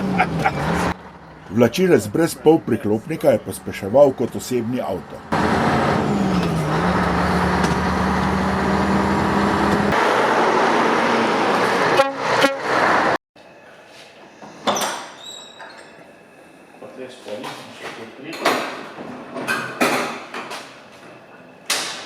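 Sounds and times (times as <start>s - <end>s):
diesel truck engine running: 0.0s - 12.0s
truck horn toots: 11.9s - 12.8s.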